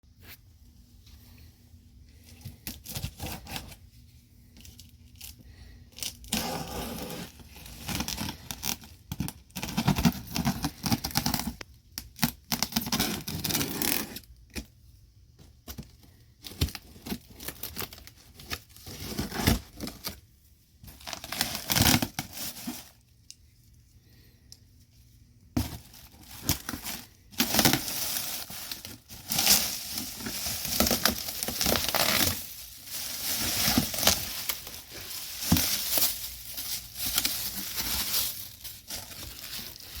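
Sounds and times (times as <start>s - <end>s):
packaging tearing and crinkling: 21.0s - 23.0s, 25.7s - 40.0s.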